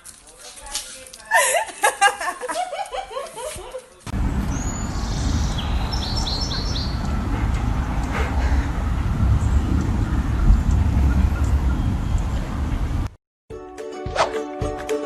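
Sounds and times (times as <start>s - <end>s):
steady low rumble: 4.1s - 13.2s
small bird chirping: 4.5s - 7.2s.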